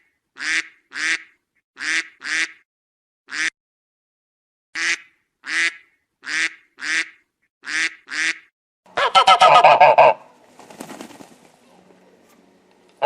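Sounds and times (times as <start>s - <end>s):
goose honking: 4.8s - 10.3s.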